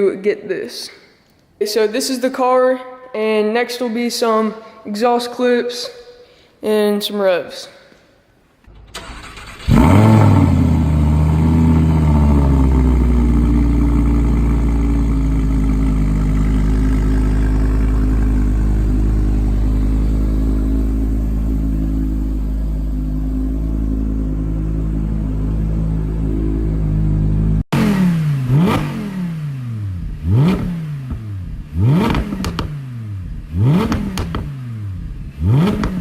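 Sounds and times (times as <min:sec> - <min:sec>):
car engine starting and idling: 0:08.7 - 0:36.0.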